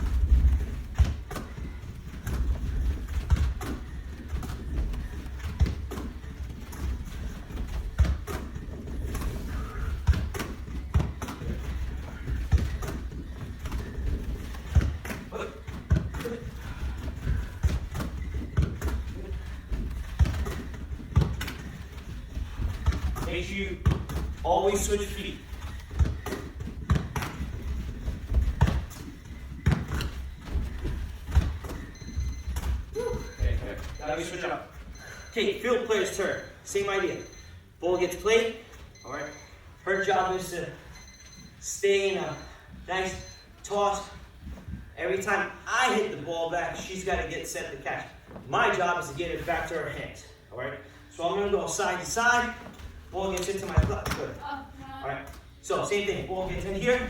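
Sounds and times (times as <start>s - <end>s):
soccer ball thumps: 0.0s - 33.8s.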